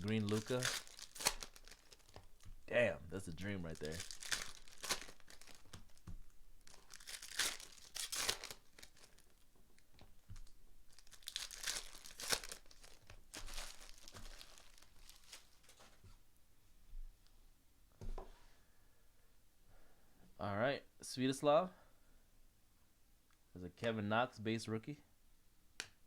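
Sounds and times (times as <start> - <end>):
foil wrappers tearing and crinkling: 0.0 - 2.5, 3.3 - 9.4, 10.4 - 15.8.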